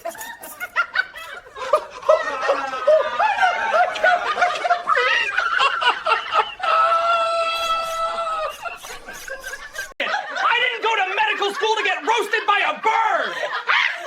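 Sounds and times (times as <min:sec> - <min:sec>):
hearty laughter: 0:00.0 - 0:14.0
long high-pitched cry: 0:05.1 - 0:09.9.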